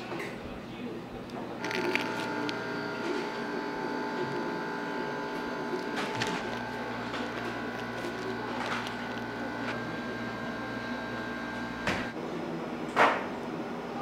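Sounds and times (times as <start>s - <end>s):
kitchen machine motor whine: 1.5s - 12.2s.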